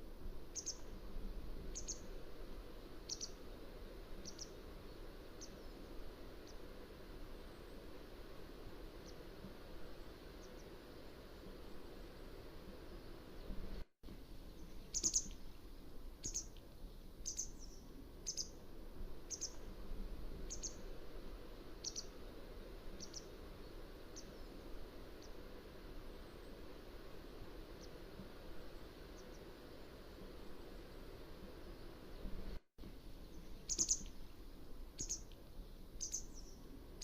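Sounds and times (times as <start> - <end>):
low background hiss: 0.0 - 37.0
bird high-pitched calls: 0.5 - 0.9, 1.7 - 2.1, 3.1 - 3.4, 4.2 - 4.6, 14.8 - 15.4, 16.2 - 16.5, 17.2 - 18.6, 19.3 - 19.6, 20.5 - 20.8, 21.8 - 22.2, 23.0 - 23.3, 33.3 - 34.2, 35.0 - 35.3, 36.0 - 36.6.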